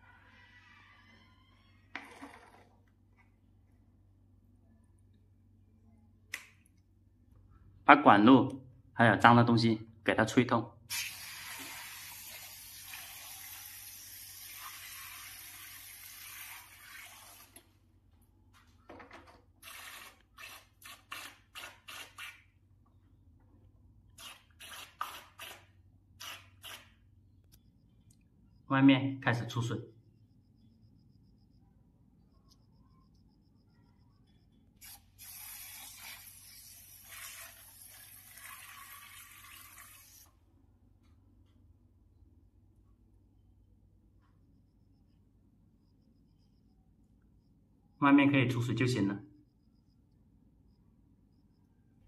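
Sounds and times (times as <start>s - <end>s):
water spraying hiss: 10.9s - 17.5s, 34.8s - 40.3s.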